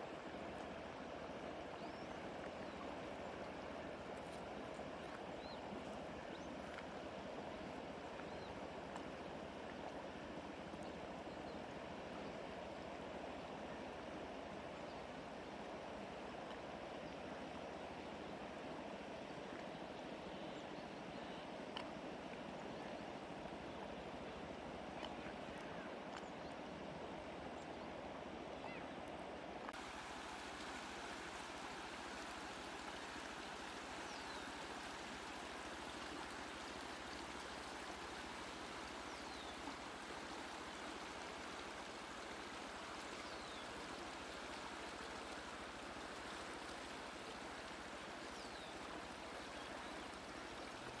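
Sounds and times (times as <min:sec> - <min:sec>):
river water rushing: 0:29.8 - 0:51.0.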